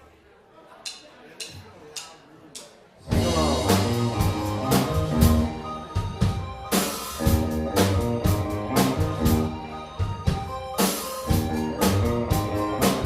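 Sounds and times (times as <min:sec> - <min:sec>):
rock band playing: 0:03.0 - 0:13.0.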